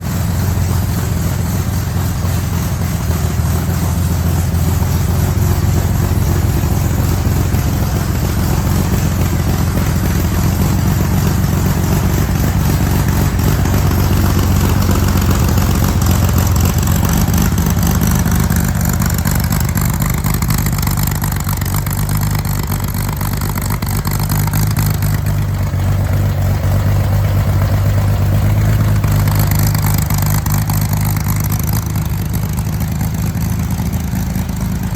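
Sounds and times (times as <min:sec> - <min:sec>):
car engine running: 0:00.0 - 0:34.9.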